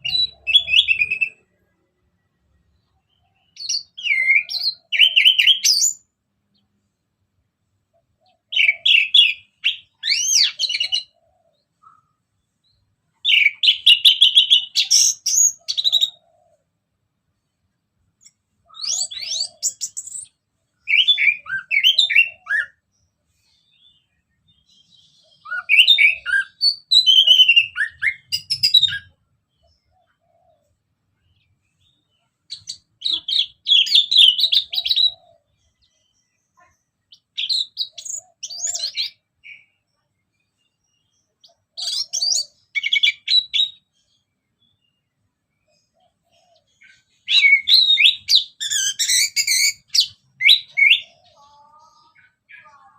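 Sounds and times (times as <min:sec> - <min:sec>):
thrush singing whistles and trills: 0:00.0 - 0:01.6, 0:03.2 - 0:06.1, 0:08.3 - 0:12.1, 0:18.6 - 0:22.9, 0:24.8 - 0:29.2, 0:32.5 - 0:35.5, 0:37.1 - 0:39.8, 0:41.4 - 0:43.9, 0:45.9 - 0:51.2.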